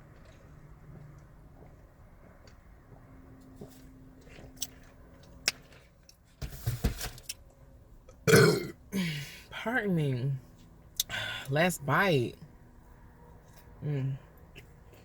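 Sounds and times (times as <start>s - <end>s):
loud burp: 8.2s - 8.8s.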